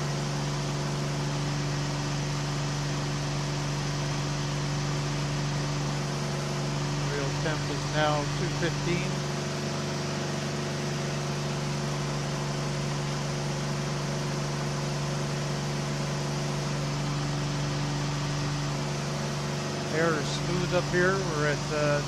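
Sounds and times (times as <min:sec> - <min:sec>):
aircraft engine and propeller droning: 0:18.0 - 0:22.0.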